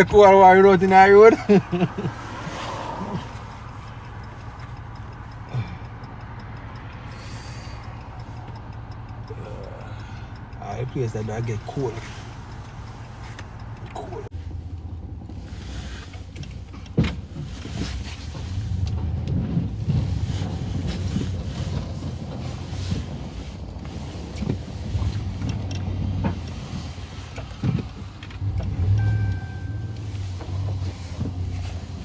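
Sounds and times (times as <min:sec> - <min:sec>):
truck engine droning: 0:00.0 - 0:32.0
knocks and clunks: 0:16.2 - 0:22.4, 0:27.4 - 0:32.0.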